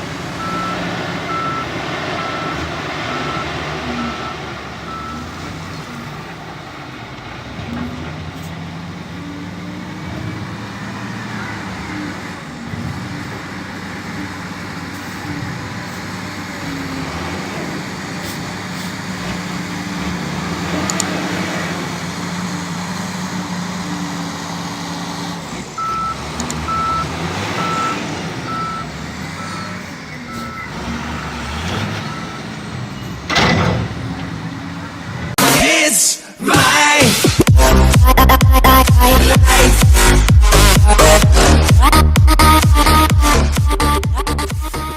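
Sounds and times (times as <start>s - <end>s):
heavy diesel machinery droning: 0.0s - 44.9s
reverse alarm beeping: 0.4s - 5.4s, 25.8s - 30.9s.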